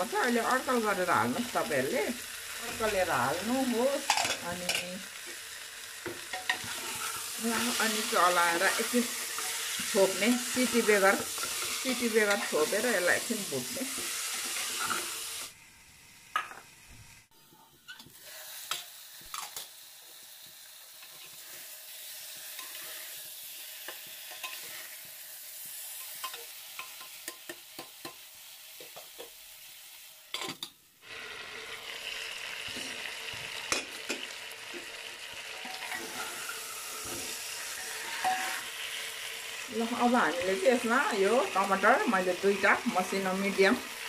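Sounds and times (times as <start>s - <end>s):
food sizzling in a pot: 0.0s - 44.0s
metal spoon scraping a pot: 35.6s - 38.7s.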